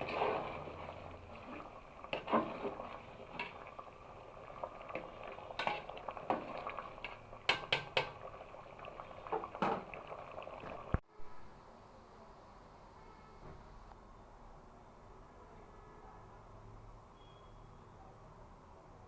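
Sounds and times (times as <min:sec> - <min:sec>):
curry bubbling in a pot: 0:00.0 - 0:11.0
utensil knocking against pot: 0:07.5 - 0:08.2.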